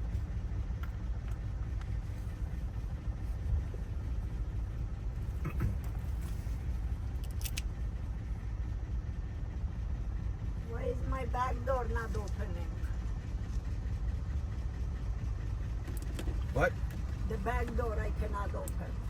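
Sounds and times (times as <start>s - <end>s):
steady low rumble: 0.0s - 19.0s
lock parts clicking and tapping: 7.2s - 7.6s.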